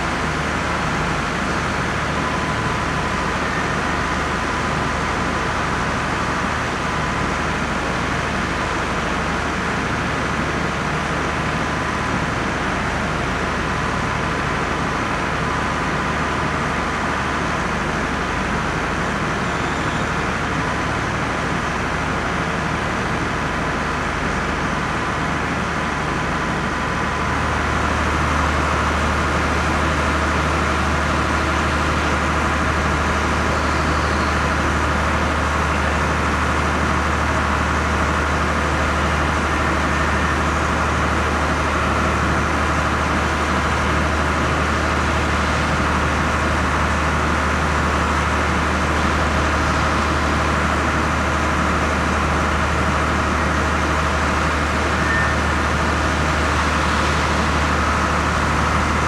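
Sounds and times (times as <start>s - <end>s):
idling train engine hum: 0.0s - 59.0s.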